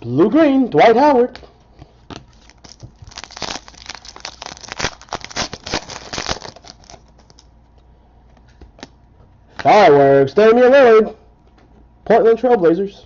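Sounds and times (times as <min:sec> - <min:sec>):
cards being handled: 0:01.8 - 0:07.5
wrapper crinkling: 0:02.2 - 0:07.6.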